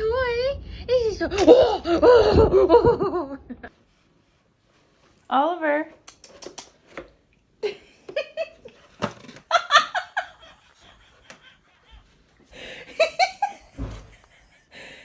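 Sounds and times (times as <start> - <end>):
people laughing: 9.6 - 14.8.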